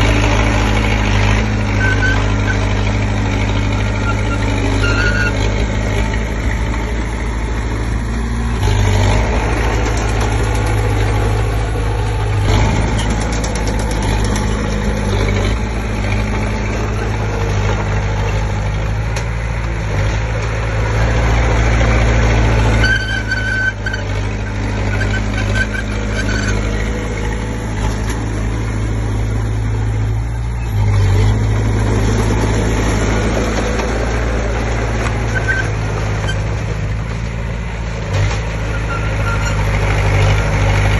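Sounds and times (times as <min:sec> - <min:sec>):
bulldozer diesel engine running: 0:00.0 - 0:40.9
short high squeaks: 0:01.7 - 0:02.7, 0:03.8 - 0:05.5, 0:22.7 - 0:26.9, 0:35.2 - 0:36.5, 0:38.6 - 0:39.7.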